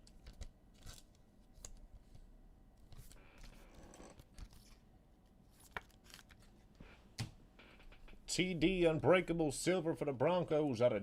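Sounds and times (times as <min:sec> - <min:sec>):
trading cards rustling: 0:00.1 - 0:03.6, 0:05.5 - 0:06.6.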